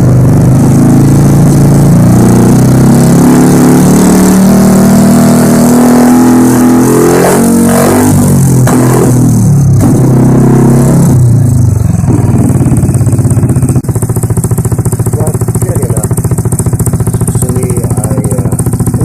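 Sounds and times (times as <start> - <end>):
scooter engine idling: 0.0 - 4.8, 11.1 - 19.0.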